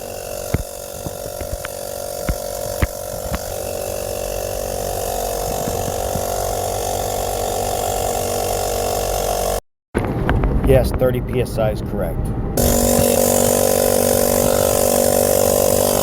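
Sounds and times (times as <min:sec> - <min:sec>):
sharp clicks: 0:00.0 - 0:03.7
air compressor running: 0:00.0 - 0:09.6, 0:12.6 - 0:16.0.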